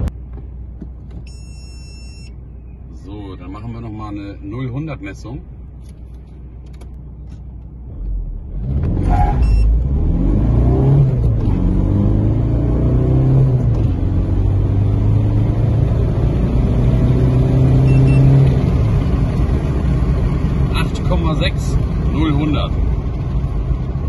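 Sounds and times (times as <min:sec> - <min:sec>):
short beeps: 0:01.3 - 0:02.4, 0:09.4 - 0:09.8, 0:17.8 - 0:18.4
car engine accelerating hard: 0:07.9 - 0:24.0.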